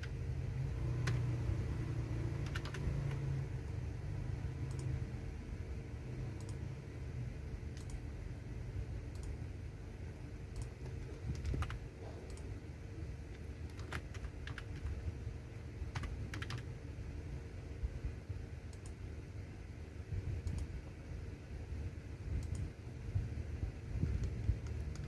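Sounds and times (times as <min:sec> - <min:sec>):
steady low hum: 0:00.0 - 0:25.0
keyboard typing: 0:00.8 - 0:03.4, 0:04.6 - 0:05.0, 0:06.3 - 0:06.7, 0:07.7 - 0:08.1, 0:09.0 - 0:09.4, 0:10.5 - 0:12.6, 0:13.3 - 0:15.1, 0:15.8 - 0:16.8, 0:24.0 - 0:25.0.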